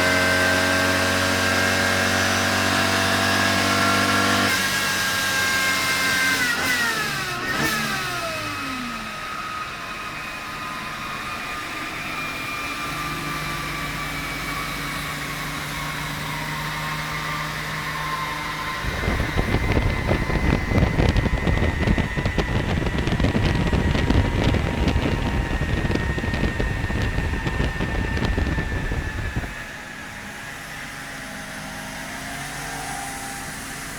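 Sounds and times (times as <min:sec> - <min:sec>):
car engine revving and idling: 0:00.0 - 0:10.5, 0:12.8 - 0:29.8
loud uneven rumble: 0:18.8 - 0:29.7.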